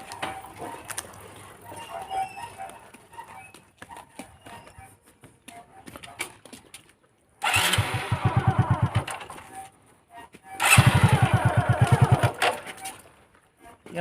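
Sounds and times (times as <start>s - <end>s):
motorcycle engine cranking: 7.4s - 9.7s, 10.6s - 13.0s.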